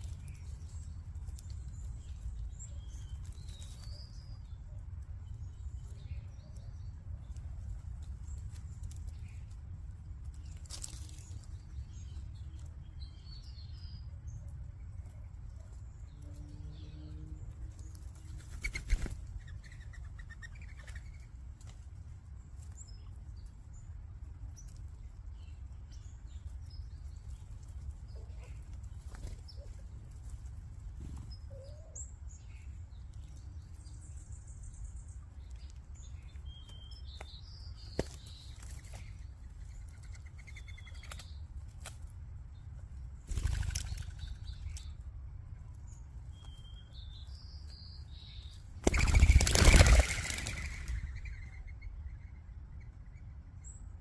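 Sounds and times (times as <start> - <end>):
songbirds chirping: 0.0 - 54.0
bird wings fluttering: 18.3 - 19.3, 43.3 - 44.4, 48.8 - 51.1.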